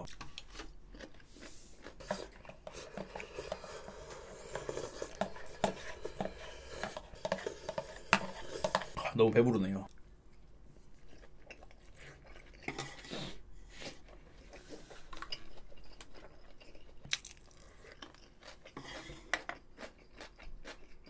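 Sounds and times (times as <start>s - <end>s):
person chewing food: 0.0s - 9.0s, 9.9s - 21.0s.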